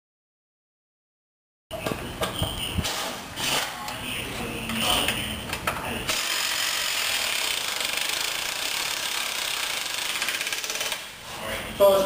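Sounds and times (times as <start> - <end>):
clattering shop noise: 1.7 - 11.5
power tool pulsing whir: 6.1 - 11.1.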